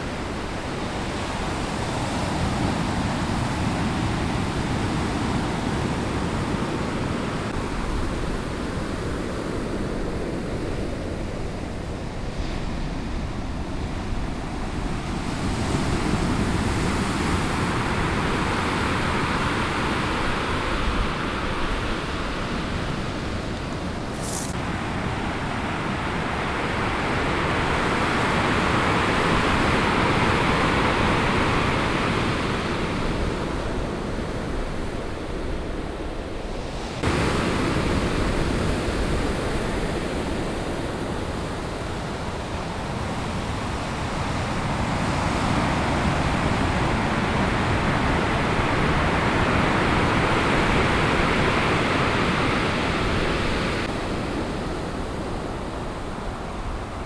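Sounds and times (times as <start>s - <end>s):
surf breaking on beach: 37.0s - 40.4s.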